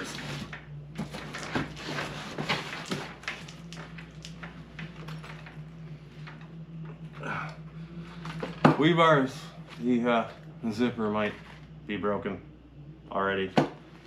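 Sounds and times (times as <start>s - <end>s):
bag rustling and scraping: 0.0s - 6.3s.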